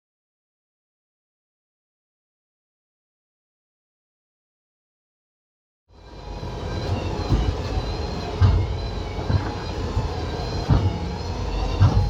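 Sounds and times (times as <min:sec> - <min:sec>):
boat engine humming: 0:06.0 - 0:12.0
low thuds: 0:06.8 - 0:12.0.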